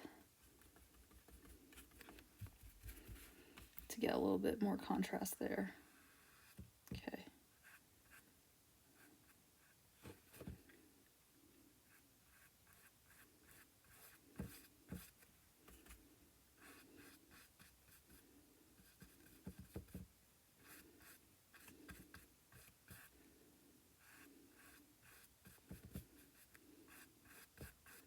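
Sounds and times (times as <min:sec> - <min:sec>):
paintbrush scratchy strokes: 0:05.8 - 0:06.6, 0:11.9 - 0:16.0, 0:16.6 - 0:19.7, 0:24.0 - 0:28.0.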